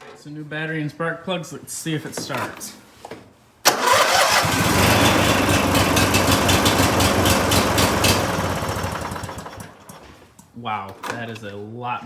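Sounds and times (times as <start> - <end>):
electric starter cranking: 3.7 - 10.1
lawn mower engine starting: 3.7 - 10.2.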